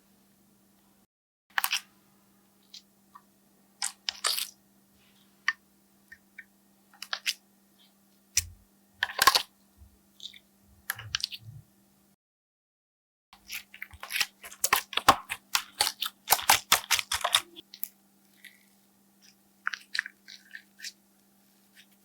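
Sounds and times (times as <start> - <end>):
faint steady hum: 4.6 - 12.2
slime sticky clicks and crackles: 13.9 - 18.5.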